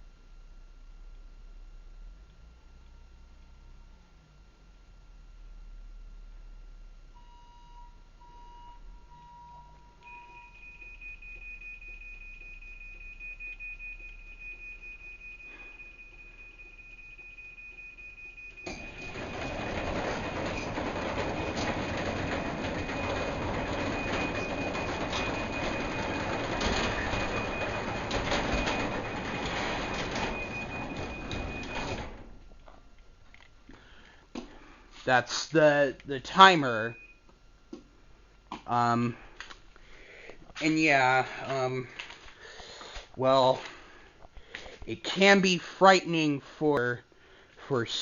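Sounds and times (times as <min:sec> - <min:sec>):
faint beeps: 0:07.2 - 0:20.7
high warning tone: 0:07.2 - 0:32.6
garage door rumbling closed: 0:18.5 - 0:32.6.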